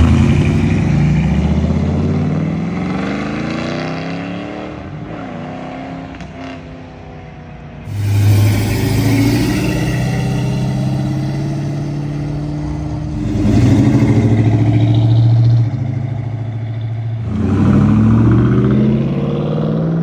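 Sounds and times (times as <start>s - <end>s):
loud car engine running steadily: 7.9s - 18.7s
car engine accelerating away: 7.9s - 20.0s.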